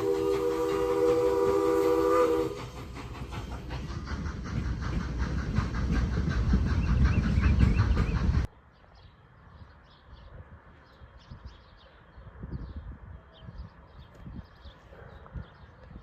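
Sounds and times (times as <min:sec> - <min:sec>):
train horn chord: 0:00.0 - 0:02.6
train rumble and wheel clatter: 0:00.0 - 0:16.0.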